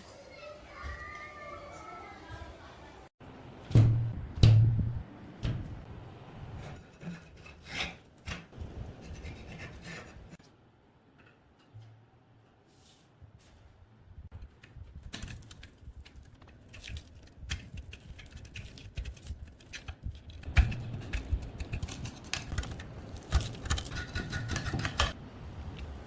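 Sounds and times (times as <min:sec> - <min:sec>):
clicks and scrapes on metal parts: 0:14.4 - 0:25.2.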